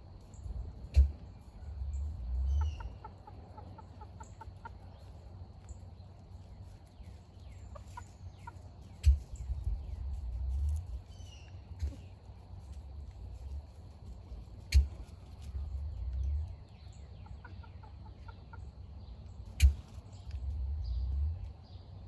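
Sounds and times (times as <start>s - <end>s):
wind rumble on microphone: 0.0s - 3.0s, 8.3s - 17.0s, 19.7s - 21.8s
hen clucking: 0.8s - 5.2s, 6.6s - 12.4s, 14.1s - 20.6s.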